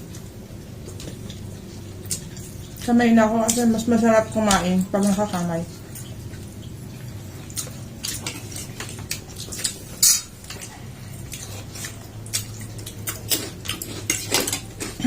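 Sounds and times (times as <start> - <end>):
low steady hum: 0.0 - 15.0
dishes and utensils clinking: 7.6 - 10.7.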